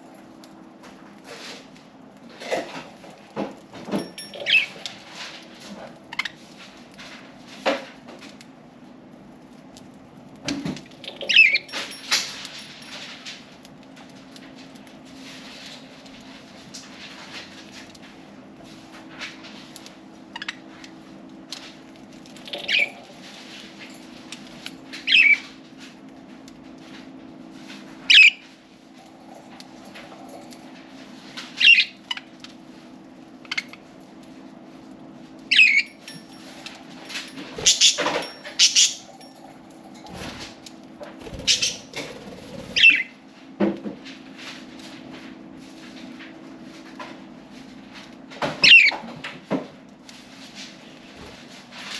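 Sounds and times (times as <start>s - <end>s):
steady low hum: 0.0s - 48.4s
budgerigars chirping: 42.8s - 43.0s.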